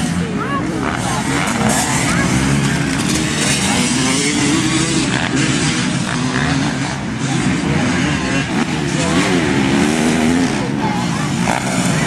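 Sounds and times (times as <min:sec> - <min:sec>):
motocross bike engines revving: 0:00.0 - 0:12.0.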